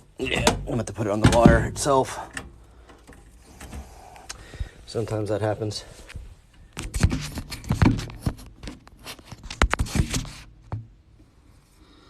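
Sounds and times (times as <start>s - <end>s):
clicks and scrapes of wiring work: 6.0s - 10.7s.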